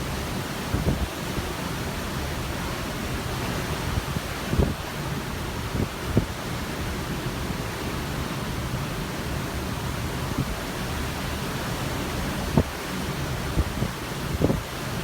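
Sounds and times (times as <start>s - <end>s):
wind gusts thumping microphone: 0.0s - 6.7s, 10.3s - 15.0s.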